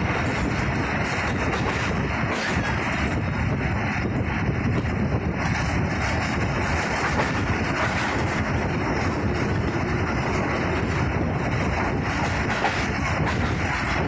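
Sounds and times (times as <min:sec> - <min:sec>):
rushing air: 0:00.0 - 0:14.0
train wheels rumbling on rails: 0:00.0 - 0:14.0.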